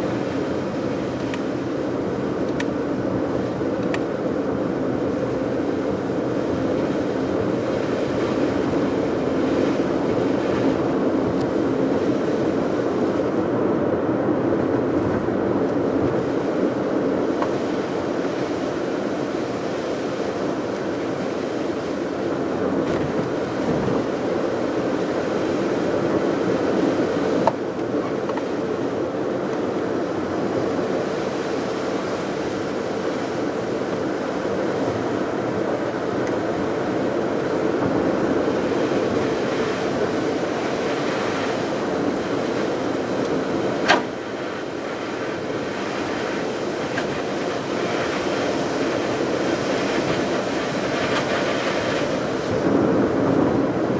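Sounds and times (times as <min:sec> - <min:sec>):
car road and engine noise: 0:40.0 - 0:48.7.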